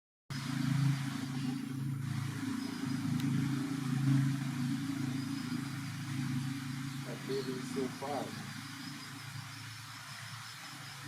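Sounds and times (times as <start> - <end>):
motor engine running: 0.3 - 11.0.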